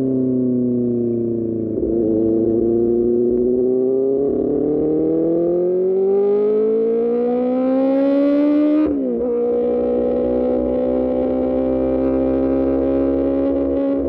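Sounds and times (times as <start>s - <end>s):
motorcycle engine revving: 1.2s - 14.0s.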